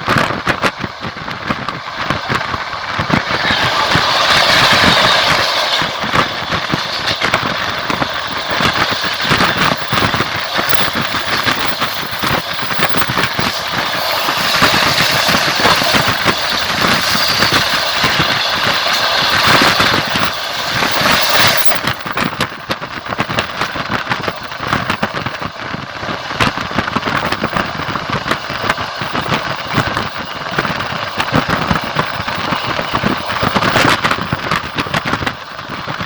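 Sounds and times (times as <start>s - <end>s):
steady train rushing noise: 0.0s - 36.0s
train wheels clattering on rails: 0.0s - 36.0s.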